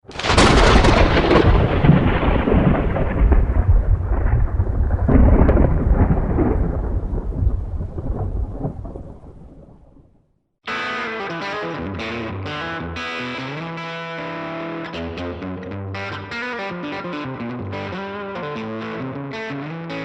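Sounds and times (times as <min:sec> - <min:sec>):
thunderclap with rolling rumble: 0:00.1 - 0:10.2.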